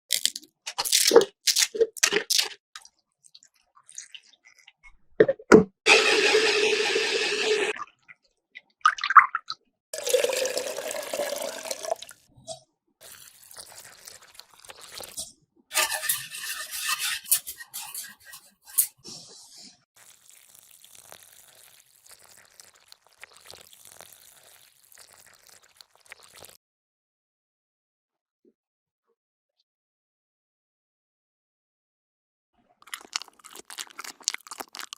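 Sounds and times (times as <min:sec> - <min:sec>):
liquid poured and mixed in bowl: 0:05.9 - 0:12.4, 0:13.0 - 0:19.1, 0:19.9 - 0:26.6, 0:32.8 - 0:34.9.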